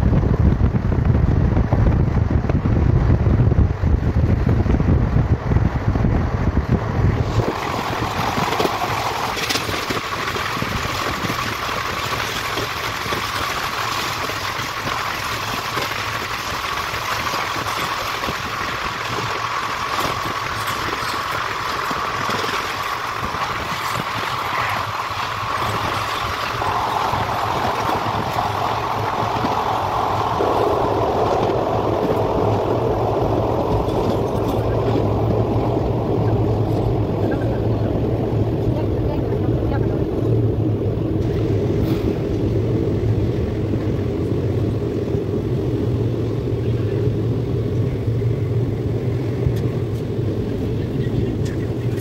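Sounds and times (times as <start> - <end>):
train wheels on rails: 0.0 - 52.0
coach rattling: 7.3 - 38.0.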